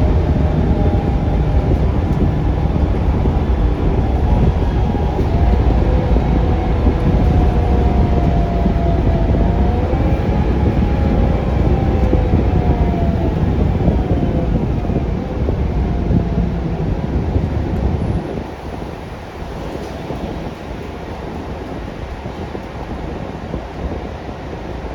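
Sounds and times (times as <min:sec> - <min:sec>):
rising and falling whine: 0:00.0 - 0:18.1
bus engine rumble and road noise: 0:00.0 - 0:24.9.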